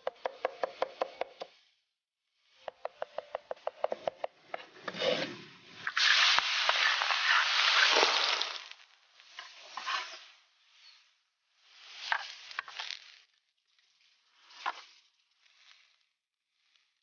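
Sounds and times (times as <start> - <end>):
hot oil hissing: 5.7 - 13.2.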